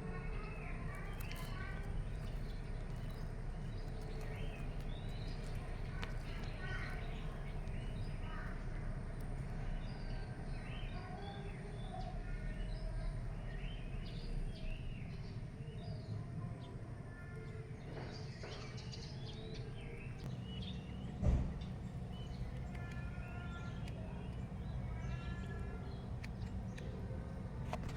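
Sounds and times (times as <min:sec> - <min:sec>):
steady low rumble: 0:00.0 - 0:11.0, 0:20.0 - 0:27.9
birds chirping and calling: 0:00.4 - 0:08.7.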